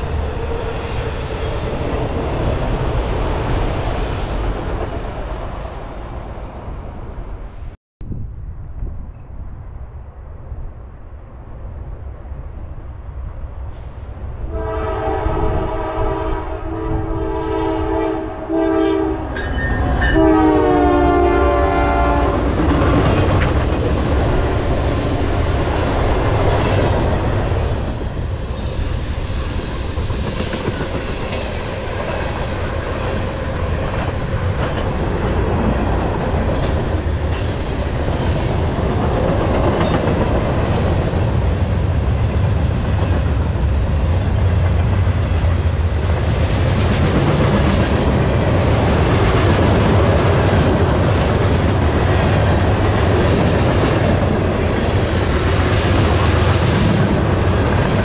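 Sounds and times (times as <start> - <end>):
locomotive horn blasts: 14.5 - 22.5.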